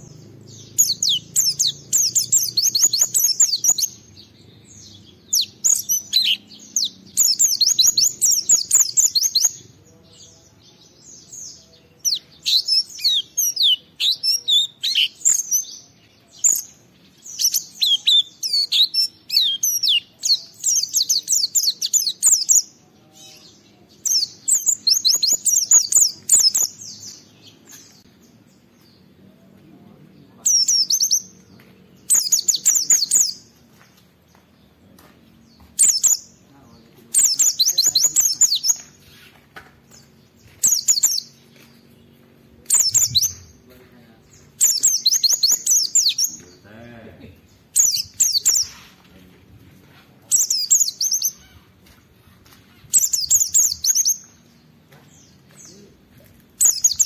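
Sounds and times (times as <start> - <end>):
bird twittering: 0.0 - 9.6, 44.3 - 46.6, 47.4 - 48.9, 50.3 - 51.8, 52.4 - 54.3, 56.6 - 57.0.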